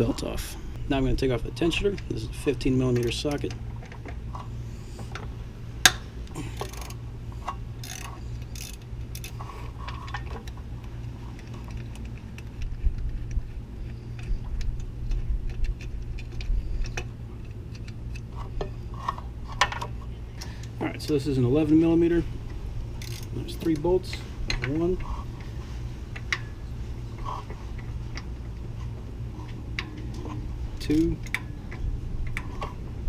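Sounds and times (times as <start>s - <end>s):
steady low hum: 0.0s - 33.0s
ratchet wrench clicking: 6.6s - 9.4s, 23.0s - 24.6s.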